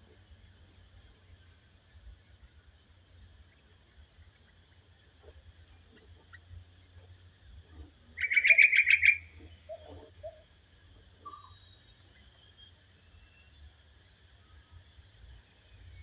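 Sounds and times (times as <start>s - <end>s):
high insect hum: 0.0s - 16.0s
faint bird chirps: 5.9s - 16.0s
songbird trilling: 8.2s - 10.4s, 11.2s - 11.7s.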